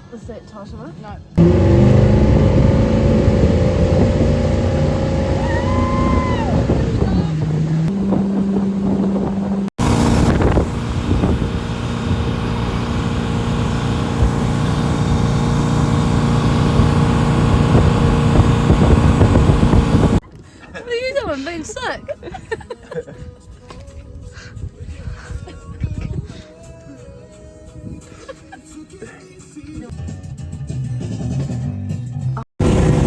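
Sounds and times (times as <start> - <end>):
motorboat engine running: 1.4 - 20.2, 32.6 - 33.0
wind on microphone: 2.2 - 20.2, 23.2 - 26.5.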